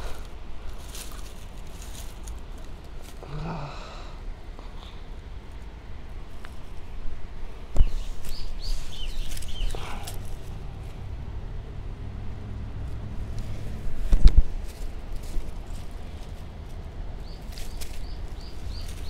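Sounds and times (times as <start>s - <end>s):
outdoor background noise: 0.0s - 19.0s
bird chirps: 7.8s - 10.2s, 17.2s - 19.0s.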